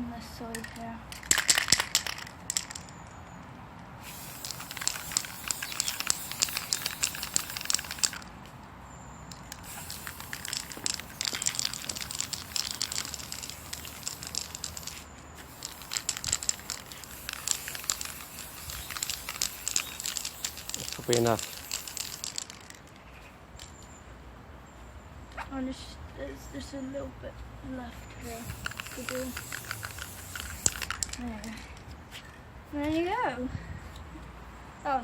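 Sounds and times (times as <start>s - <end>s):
spray paint can hissing: 1.2s - 2.9s, 4.0s - 8.3s, 9.3s - 22.9s, 28.2s - 31.3s.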